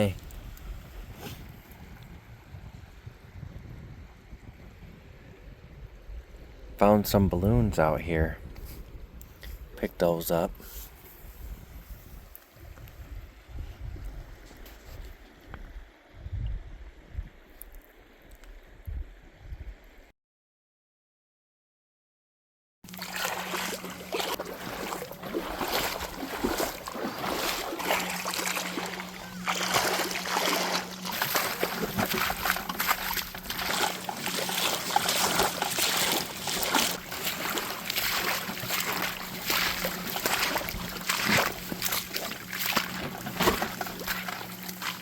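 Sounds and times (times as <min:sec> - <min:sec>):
water splashing and lapping: 0:22.8 - 0:45.0
steady low hum: 0:22.9 - 0:45.0.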